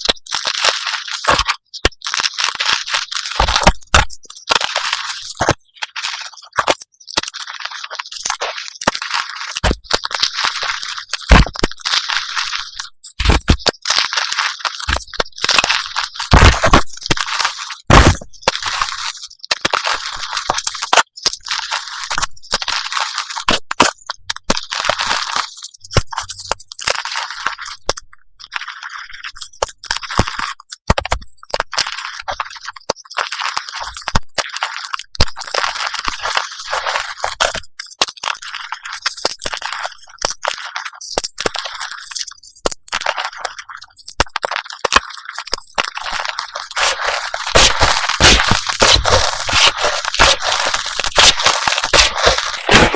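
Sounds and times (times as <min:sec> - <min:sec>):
chalk crushing and crumbling: 0:00.0 - 0:27.8, 0:28.5 - 0:42.1, 0:42.9 - 0:52.9.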